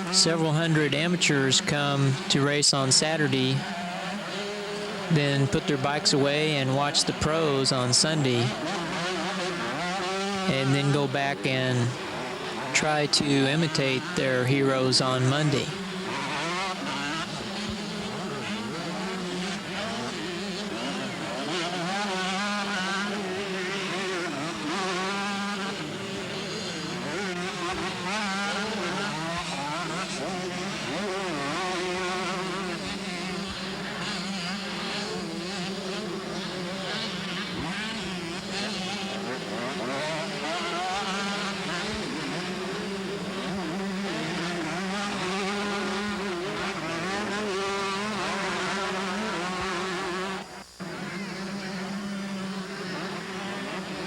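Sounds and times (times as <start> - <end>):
motocross bikes revving: 0.0 - 54.0.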